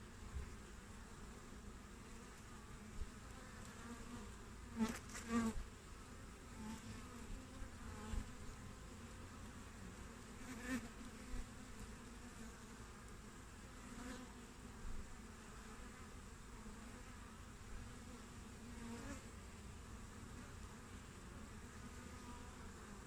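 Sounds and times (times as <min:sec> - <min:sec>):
honeybees buzzing: 0:00.0 - 0:23.0.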